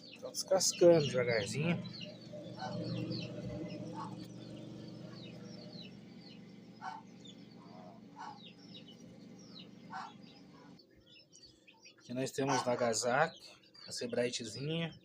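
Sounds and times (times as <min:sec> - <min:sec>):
steady low hum: 0:00.0 - 0:10.9
chicks peeping: 0:00.0 - 0:15.0
lower chick calls: 0:00.8 - 0:10.8.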